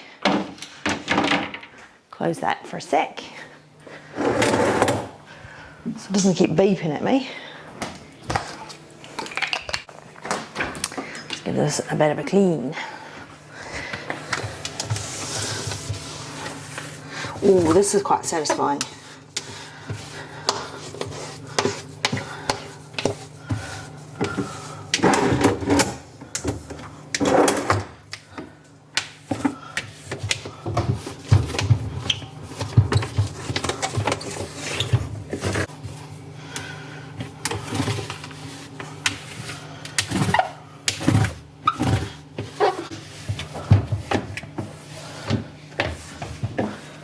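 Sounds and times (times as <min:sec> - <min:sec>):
knocks and clatters of parts: 0:00.2 - 0:01.8
cloth wiping and rubbing: 0:14.5 - 0:18.4, 0:19.5 - 0:22.1.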